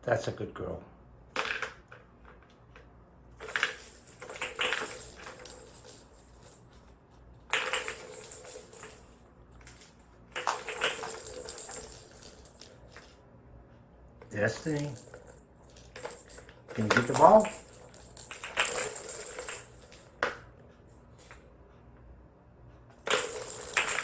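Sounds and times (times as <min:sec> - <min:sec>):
ball toy rattling and jingling: 0:03.4 - 0:13.2, 0:14.2 - 0:21.4, 0:23.0 - 0:24.0.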